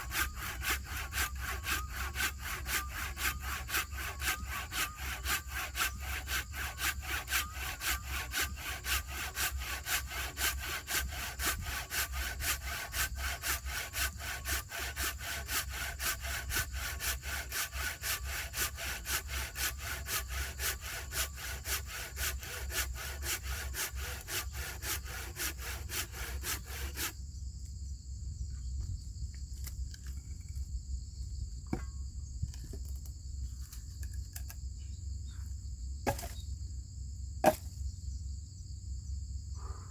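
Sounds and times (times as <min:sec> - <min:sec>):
hand saw cutting wood: 0:00.0 - 0:27.2, 0:36.0 - 0:36.4, 0:37.4 - 0:37.7
insects trilling: 0:00.0 - 0:39.9.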